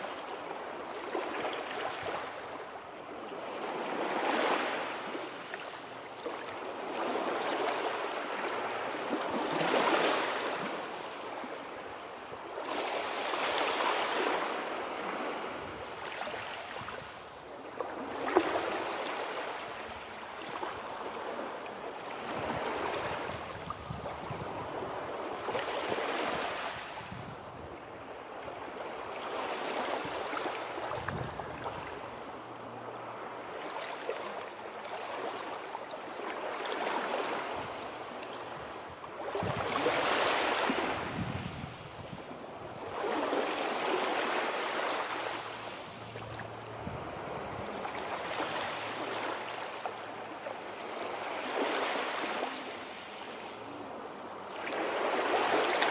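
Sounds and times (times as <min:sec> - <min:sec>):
sea waves breaking: 0:03.4 - 0:27.2, 0:27.8 - 0:55.9.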